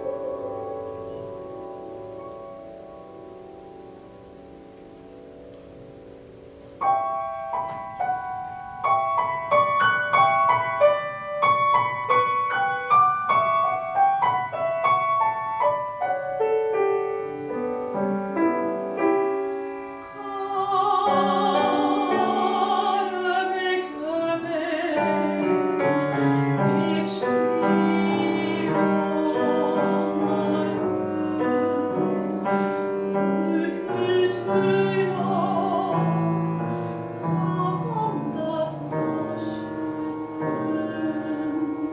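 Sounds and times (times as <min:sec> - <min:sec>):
soprano singing with vibrato: 0:19.9 - 0:41.9.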